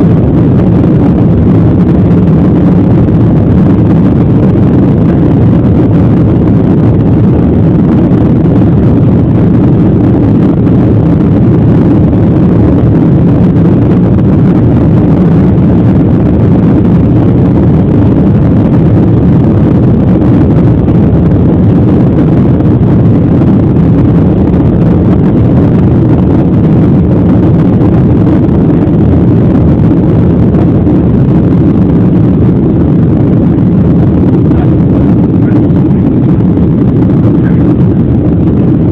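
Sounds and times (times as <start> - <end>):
jet engine cabin rumble: 0.0 - 38.9.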